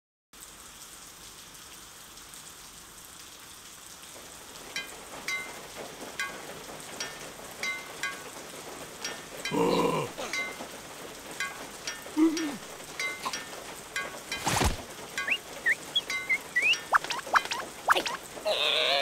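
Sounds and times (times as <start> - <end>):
rain hiss: 0.4 - 19.0
water drops plinking: 11.4 - 18.2.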